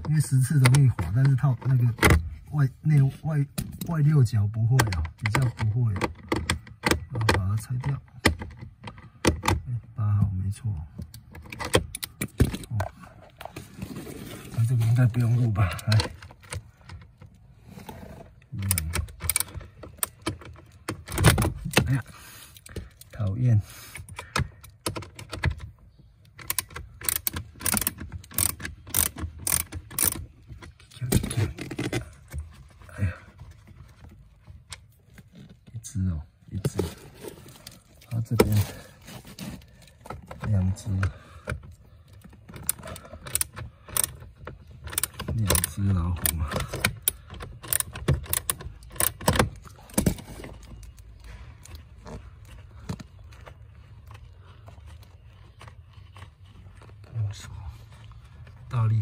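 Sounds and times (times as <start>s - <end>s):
handling and rustling: 11.1s - 23.4s, 24.0s - 59.0s
ratchet wrench clicking: 26.4s - 30.2s, 47.0s - 49.2s
small screws clinking: 26.4s - 30.3s.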